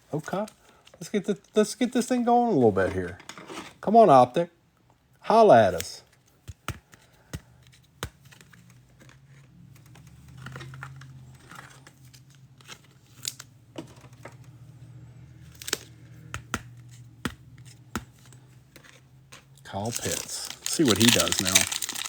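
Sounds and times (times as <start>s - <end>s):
cards clicking and tapping: 5.6s - 14.6s, 15.4s - 22.0s
foil wrappers crinkling and tearing: 19.7s - 22.0s.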